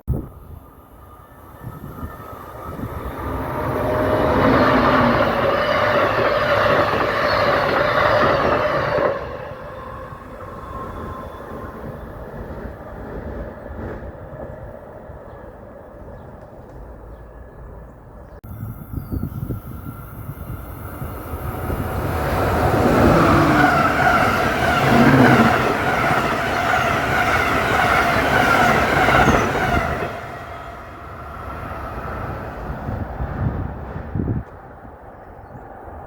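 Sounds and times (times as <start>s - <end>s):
train passing with whine: 0.1s - 36.0s.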